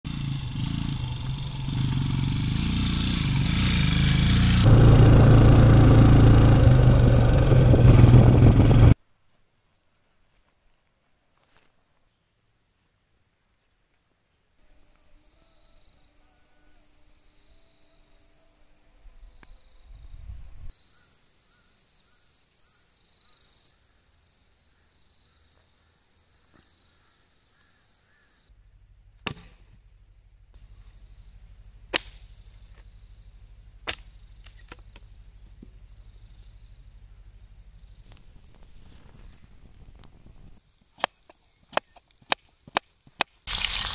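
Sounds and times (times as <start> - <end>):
insects chirring: 8.9 - 43.9.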